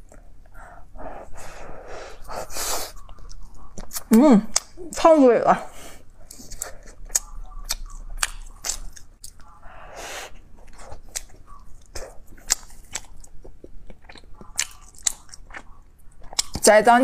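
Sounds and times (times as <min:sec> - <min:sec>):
breathy sound: 0:00.5 - 0:03.0, 0:09.6 - 0:10.4
chewing with wet mouth clicks: 0:02.9 - 0:04.8, 0:06.2 - 0:09.6, 0:10.6 - 0:16.8.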